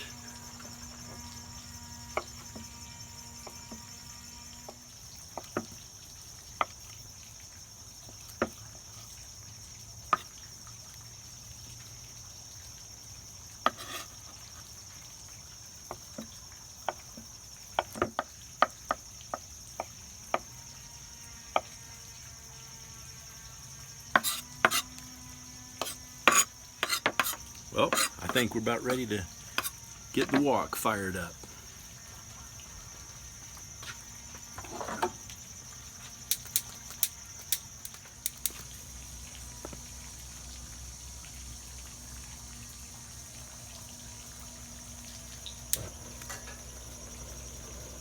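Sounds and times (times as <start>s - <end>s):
distant power tool humming: 0.0s - 4.8s, 20.4s - 35.4s, 38.5s - 48.0s
high insect drone: 0.0s - 48.0s.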